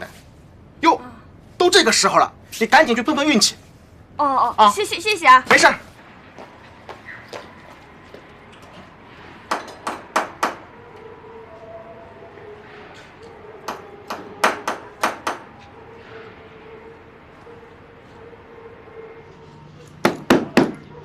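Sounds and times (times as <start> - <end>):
sharp evenly spaced knocks: 6.4 - 10.7, 13.6 - 15.7, 20.0 - 20.8.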